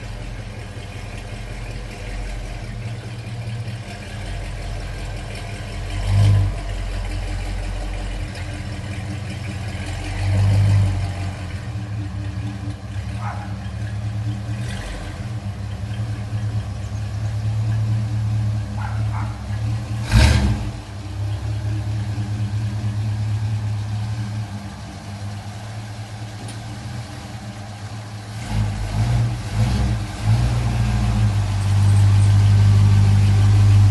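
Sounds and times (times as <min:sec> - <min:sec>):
car engine idling and revving: 0:00.0 - 0:33.9.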